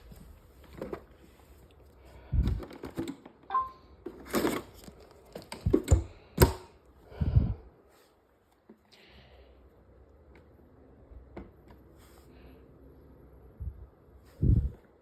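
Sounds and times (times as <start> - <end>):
short beep: 3.5 - 3.8.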